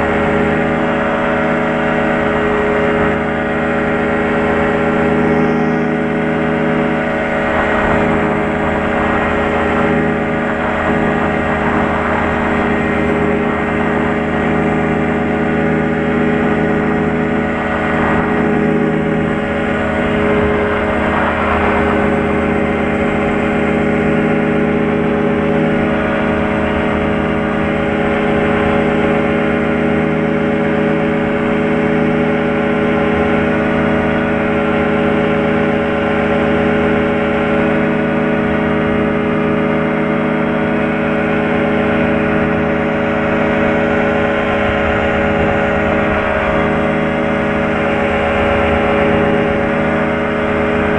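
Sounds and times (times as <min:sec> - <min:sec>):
propeller aircraft engine droning: 0:00.0 - 0:50.9.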